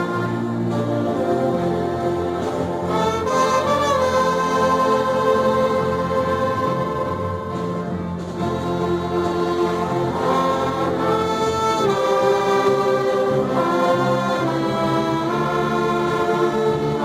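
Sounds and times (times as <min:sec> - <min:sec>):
orchestra playing a hymn: 0:00.0 - 0:17.0.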